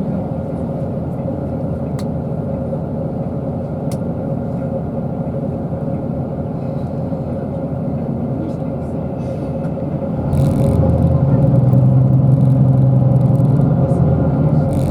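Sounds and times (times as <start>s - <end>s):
bus engine and road rumble: 0.0s - 14.9s
steady hum: 10.0s - 14.9s.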